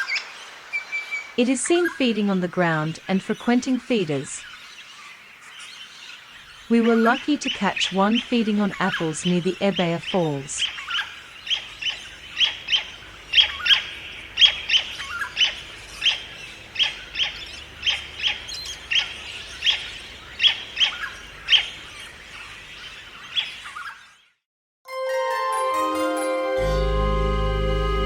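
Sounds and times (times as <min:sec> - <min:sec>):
bird chirps: 0:00.0 - 0:24.4
music: 0:24.9 - 0:28.0.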